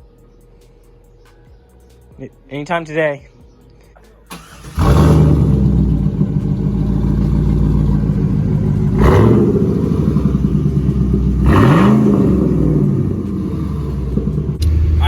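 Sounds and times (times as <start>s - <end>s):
car engine idling and revving: 4.3s - 15.0s.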